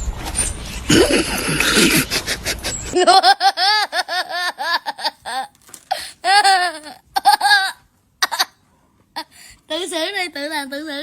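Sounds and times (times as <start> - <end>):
person laughing: 0.9 - 8.5.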